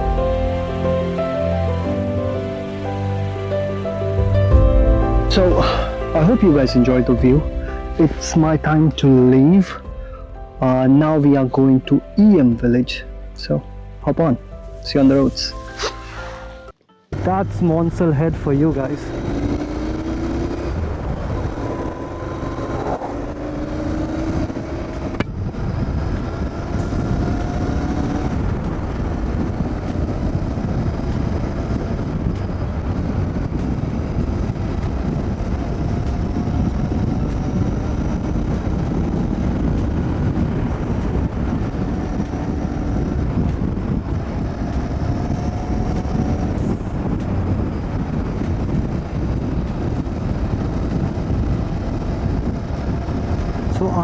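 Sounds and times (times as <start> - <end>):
steady rushing noise: 0.0 - 11.9, 14.9 - 54.0
motorcycle engine accelerating: 17.1 - 54.0.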